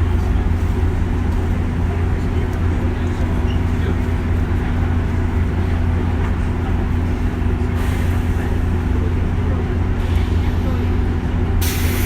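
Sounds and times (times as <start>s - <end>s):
train motors and wheels rumbling: 0.0s - 12.0s
short hiss: 11.6s - 12.0s.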